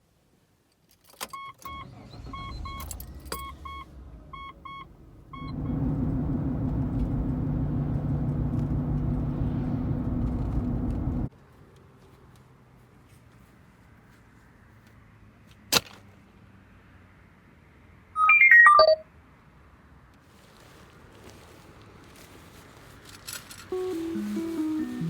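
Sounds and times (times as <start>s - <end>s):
car warning chime beeping: 1.4s - 11.3s, 18.2s - 19.0s, 23.7s - 25.0s
car engine humming: 1.8s - 11.3s, 23.7s - 25.0s
low rumble: 5.4s - 11.3s.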